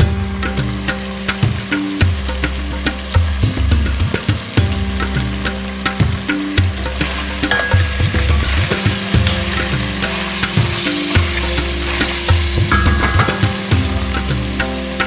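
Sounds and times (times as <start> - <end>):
food sizzling in a pan: 0.4 - 15.0
utensil scraping against pan: 6.9 - 13.7.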